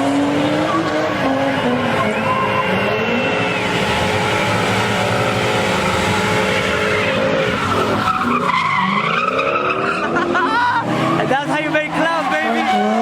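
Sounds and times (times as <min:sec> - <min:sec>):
car engine revving: 0:00.0 - 0:13.0
tyres squealing: 0:00.5 - 0:13.0.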